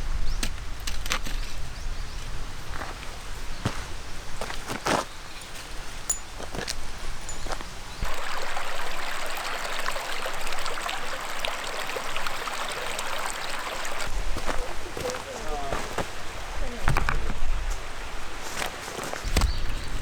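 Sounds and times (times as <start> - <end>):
creek water flowing: 7.4 - 20.0.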